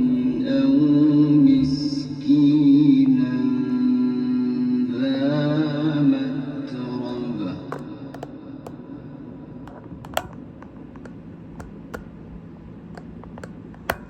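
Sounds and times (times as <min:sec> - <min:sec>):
man reciting: 0:00.0 - 0:08.0
low steady hum: 0:00.0 - 0:14.0.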